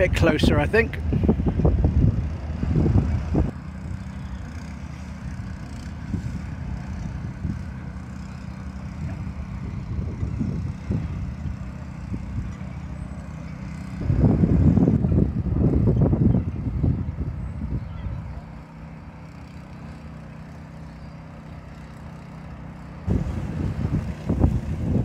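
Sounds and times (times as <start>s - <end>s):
wind rumbling on microphone: 0.0s - 4.5s, 5.1s - 13.0s, 13.6s - 18.6s, 23.1s - 25.0s.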